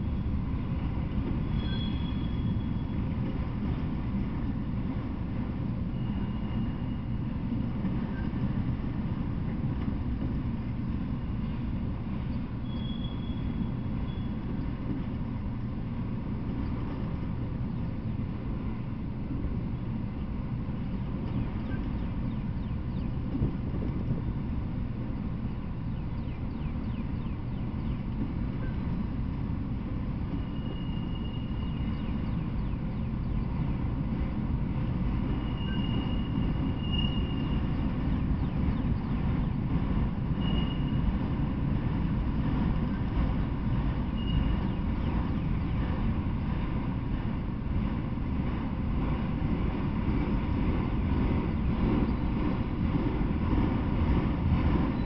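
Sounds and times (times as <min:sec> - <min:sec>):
low rumble of train wheels: 0:00.0 - 0:55.0
faint high wheel squeals: 0:01.4 - 0:03.3, 0:05.8 - 0:08.7, 0:11.2 - 0:15.0, 0:30.2 - 0:33.4, 0:35.2 - 0:37.9, 0:40.3 - 0:41.2, 0:44.0 - 0:45.7.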